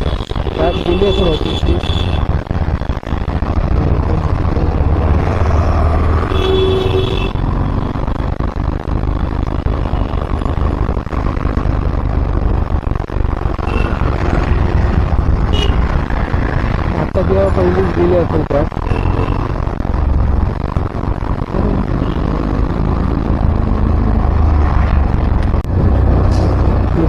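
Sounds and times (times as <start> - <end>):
road traffic rumble: 0.0 - 27.0
vehicle horn: 6.3 - 7.3, 15.5 - 15.8.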